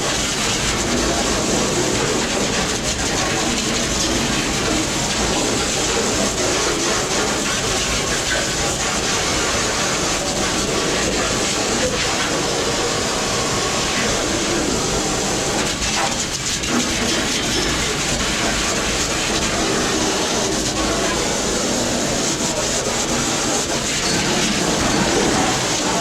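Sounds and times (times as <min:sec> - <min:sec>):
loud rushing mechanical noise: 0:00.0 - 0:26.0.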